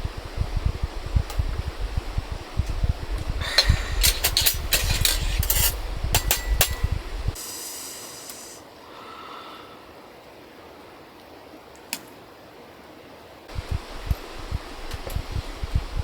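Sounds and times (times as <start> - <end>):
low thumping: 0.0 - 7.4, 13.5 - 16.0
objects clicking and knocking: 3.4 - 7.4
short hiss: 7.4 - 9.6.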